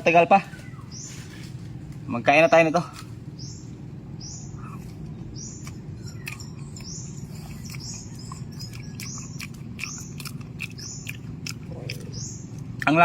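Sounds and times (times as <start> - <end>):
small bird chirping: 0.0 - 1.6, 2.3 - 13.0
steady low rumble: 0.0 - 13.0
person chewing fruit: 4.6 - 13.0.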